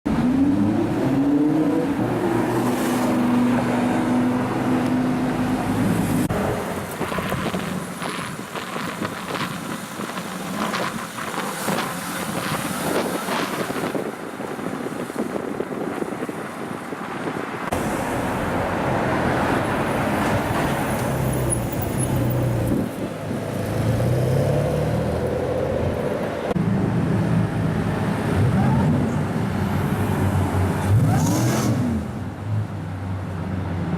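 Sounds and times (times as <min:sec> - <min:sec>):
sports car engines revving: 0:00.1 - 0:13.8, 0:27.5 - 0:32.8
traffic noise: 0:00.1 - 0:33.9.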